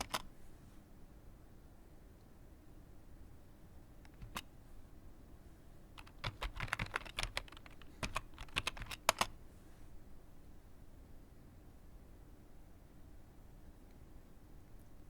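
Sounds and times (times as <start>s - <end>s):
typing on keyboard: 0.0s - 0.3s, 4.1s - 4.5s, 6.0s - 9.4s.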